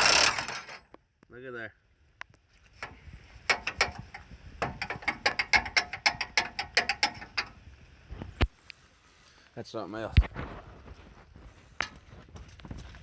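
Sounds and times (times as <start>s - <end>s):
impact wrench hammering on bolt: 0.0s - 0.8s, 2.8s - 7.5s.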